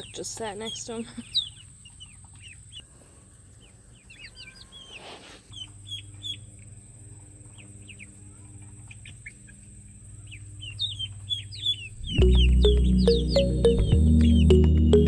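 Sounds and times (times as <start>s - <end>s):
chicks peeping: 0.0s - 15.0s
low hum: 11.5s - 15.0s.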